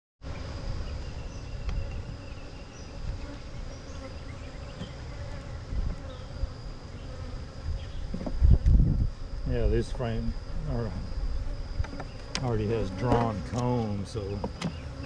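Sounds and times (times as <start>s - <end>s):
bee swarm buzzing: 0.2s - 15.0s.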